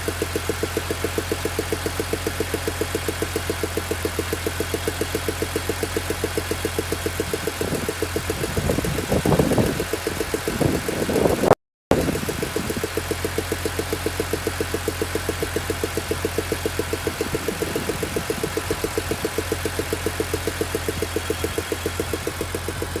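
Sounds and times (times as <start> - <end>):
car engine idling: 0.0 - 23.0
rhythmic engine ticking: 0.1 - 23.0.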